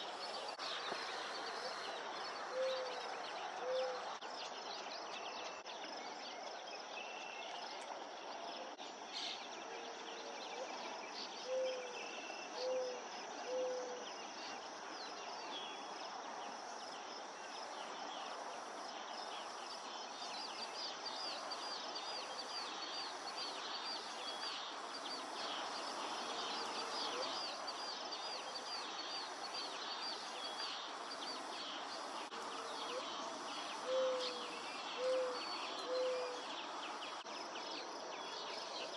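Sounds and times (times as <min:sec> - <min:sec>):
insects buzzing drone: 0:13.5 - 0:38.9
small birds chirping: 0:13.5 - 0:38.9.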